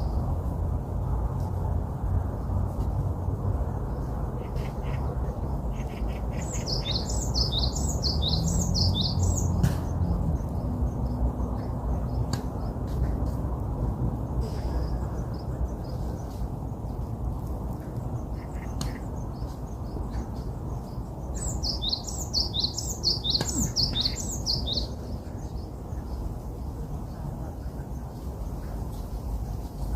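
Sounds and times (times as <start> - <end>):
songbird singing falling notes: 6.5 - 12.9, 18.6 - 25.6.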